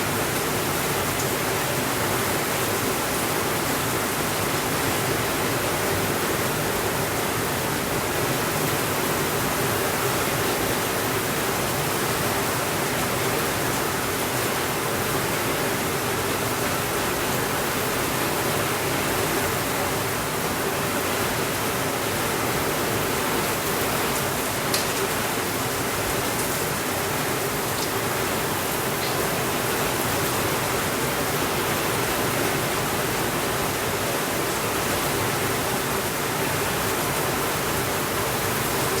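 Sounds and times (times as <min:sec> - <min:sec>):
steady rainfall: 0:00.0 - 0:39.0.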